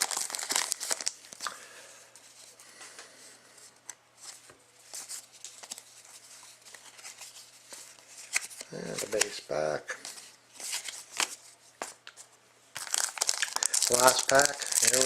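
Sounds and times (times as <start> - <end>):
card and wrapper rustling: 0.0 - 1.5, 4.2 - 9.4, 10.0 - 15.0.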